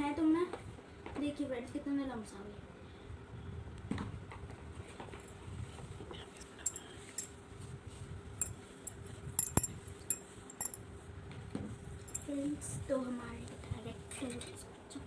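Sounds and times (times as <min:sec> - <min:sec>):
utensil clinking against bowl: 0:06.6 - 0:07.3, 0:08.4 - 0:10.8, 0:12.1 - 0:12.3.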